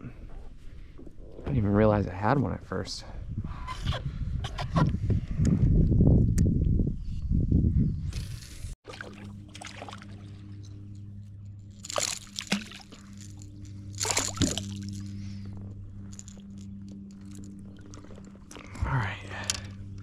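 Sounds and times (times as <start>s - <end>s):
steady low hum: 8.2s - 20.0s
water sloshing and splashing: 8.8s - 20.0s.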